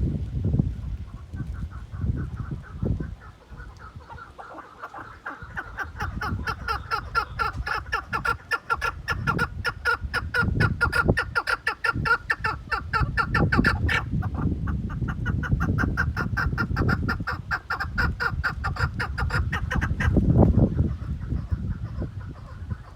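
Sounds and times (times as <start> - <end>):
partridge clucking call: 2.4 - 20.2.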